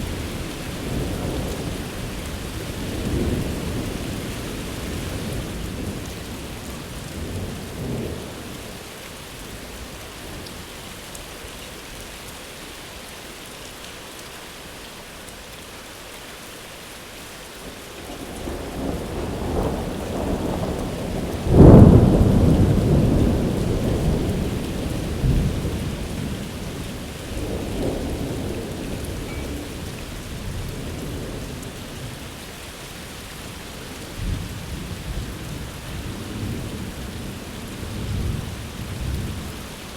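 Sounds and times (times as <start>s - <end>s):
steady rain falling: 0.0s - 39.9s
thunder rumbling and clapping: 18.2s - 31.7s.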